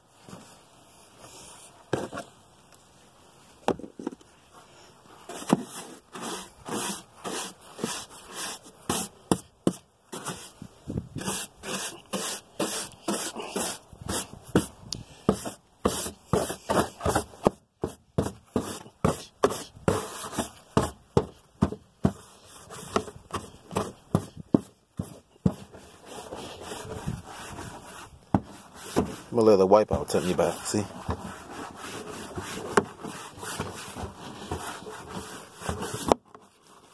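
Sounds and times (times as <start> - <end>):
bristle brush scrubbing: 5.2 - 9.2, 11.2 - 20.8, 25.0 - 36.1.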